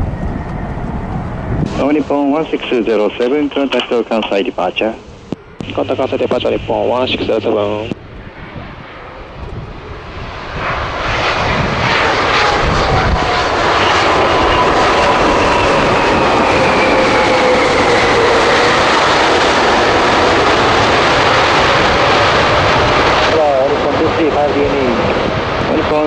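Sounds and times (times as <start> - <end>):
jet engines roaring: 0.0 - 26.0
whining tones sliding down: 13.8 - 20.0.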